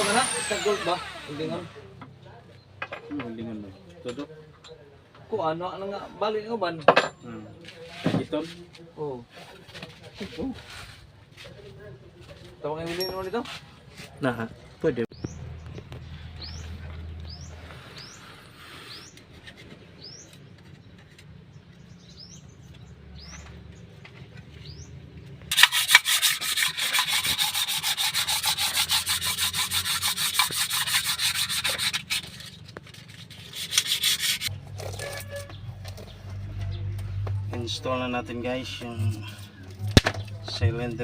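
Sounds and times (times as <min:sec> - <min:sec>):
abrasive scrubbing on engine parts: 0:25.5 - 0:36.1.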